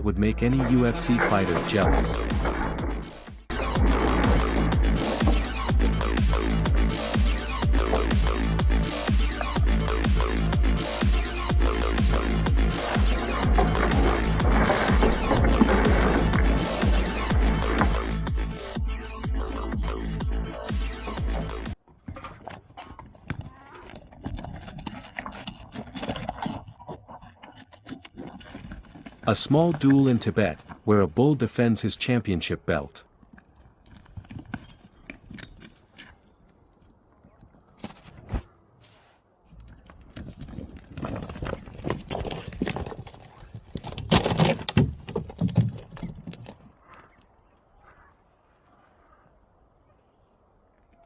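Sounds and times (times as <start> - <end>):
hooves on hard ground: 0.0 - 49.5
bulls fighting knocks and thuds: 0.6 - 18.3, 21.1 - 30.8, 39.6 - 47.1.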